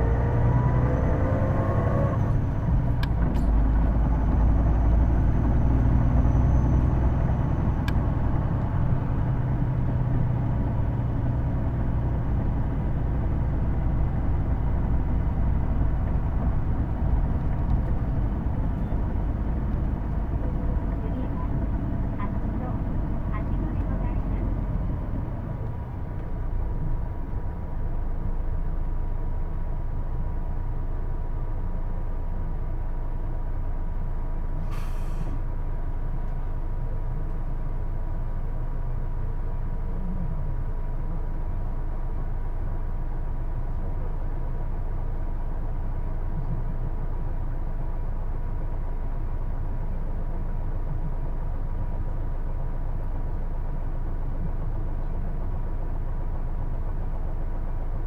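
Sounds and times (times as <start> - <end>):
bus engine drone: 0.0 - 58.0
air hiss: 34.7 - 35.4.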